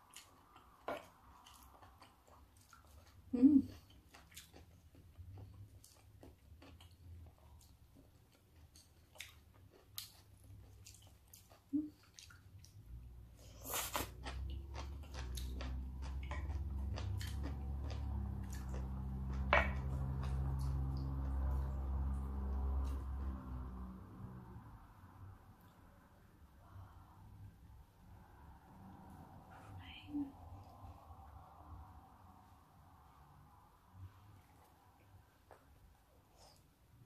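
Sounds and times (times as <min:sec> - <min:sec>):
wet chewing mouth sounds: 0:00.0 - 0:23.4.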